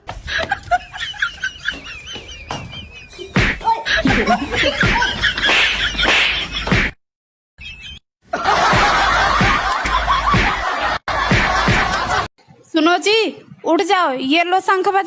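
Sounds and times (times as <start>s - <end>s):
people laughing: 0.1s - 6.7s, 8.3s - 12.3s.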